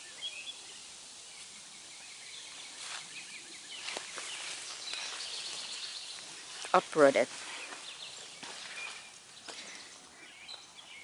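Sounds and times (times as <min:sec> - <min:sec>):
steady high hiss: 0:00.0 - 0:11.0
faint bird chirps: 0:07.4 - 0:11.0.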